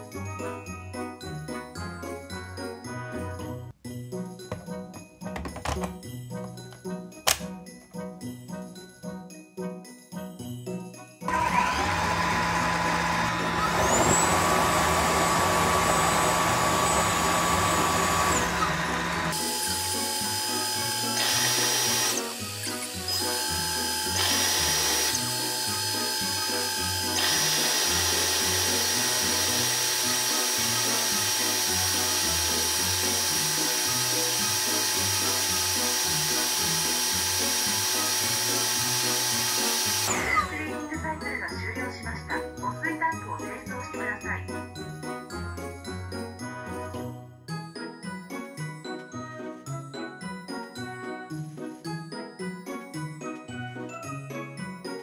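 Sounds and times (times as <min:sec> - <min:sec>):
background music: 0:00.0 - 0:55.0
vacuum motor whirring whine: 0:11.3 - 0:40.8.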